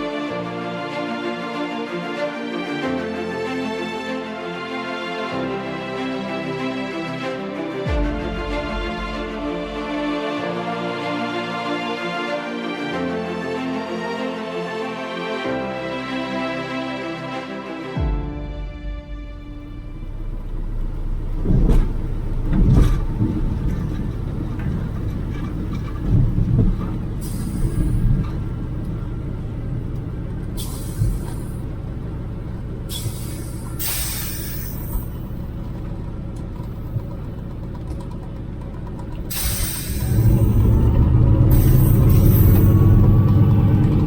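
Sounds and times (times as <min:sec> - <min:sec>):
radial engine rumbling: 0:18.3 - 0:44.0
short hissing bursts: 0:32.9 - 0:35.2, 0:39.3 - 0:40.3.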